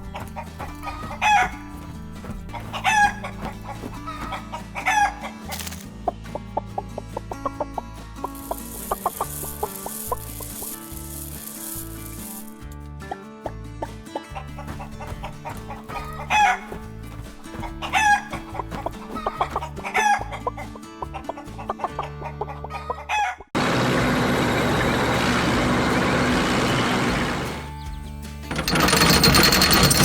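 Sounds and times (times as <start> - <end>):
chicken clucking and crowing: 0.0 - 5.7, 6.8 - 10.8, 14.2 - 27.8
low music bed: 23.6 - 30.0.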